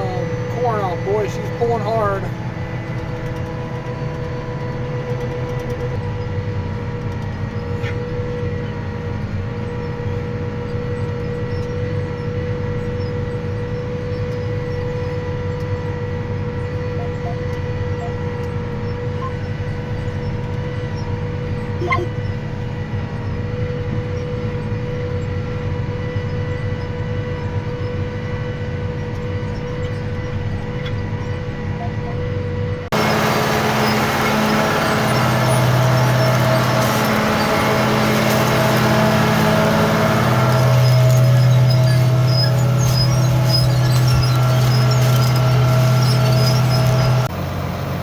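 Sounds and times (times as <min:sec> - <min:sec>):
tractor engine under load: 0:00.0 - 0:10.3, 0:32.8 - 0:48.0
constant whine: 0:00.0 - 0:48.0.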